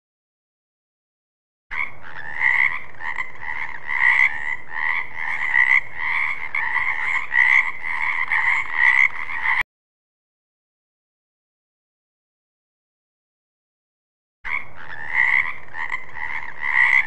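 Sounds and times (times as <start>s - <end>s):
frog croaking: 1.7s - 9.6s, 14.5s - 17.0s.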